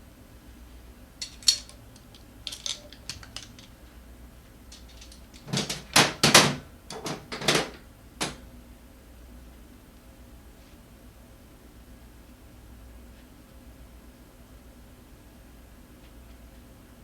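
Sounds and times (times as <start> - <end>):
hard objects clicking and knocking: 1.2 - 3.8, 4.7 - 8.4.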